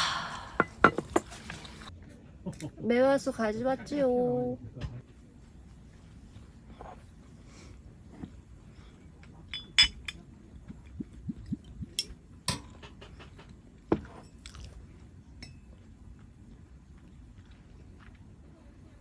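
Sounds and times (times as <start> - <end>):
tableware and utensils clinking: 0.6 - 1.9, 9.4 - 10.2.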